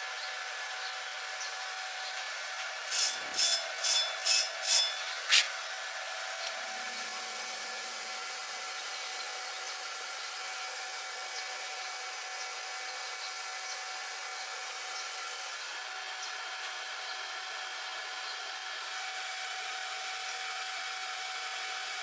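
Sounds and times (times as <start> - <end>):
metallic clink: 2.9 - 5.5.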